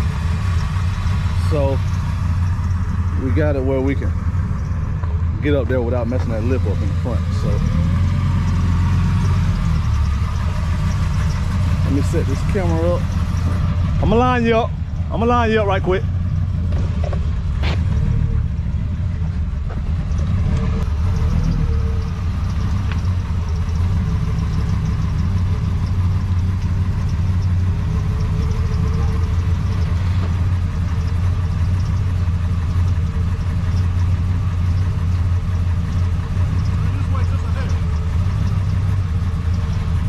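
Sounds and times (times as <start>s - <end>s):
vehicle engine idling: 0.0s - 40.0s.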